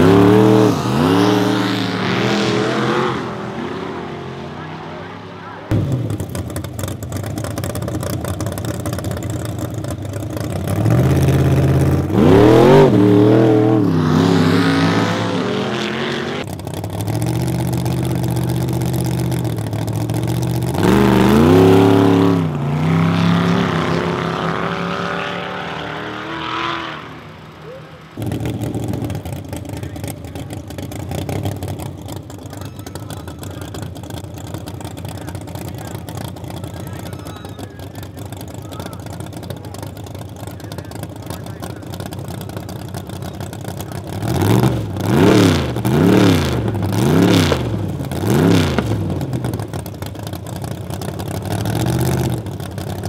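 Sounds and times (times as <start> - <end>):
drag car engine idling and revving: 0.0 - 53.0.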